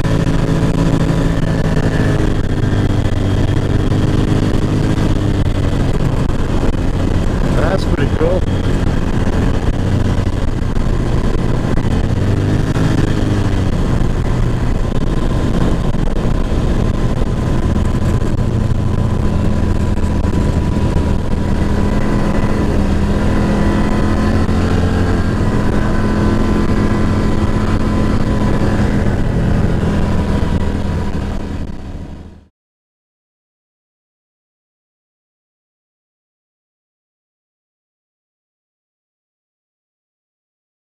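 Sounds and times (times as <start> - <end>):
off-road vehicle engine running: 0.0 - 32.5
steady whine: 0.0 - 32.5.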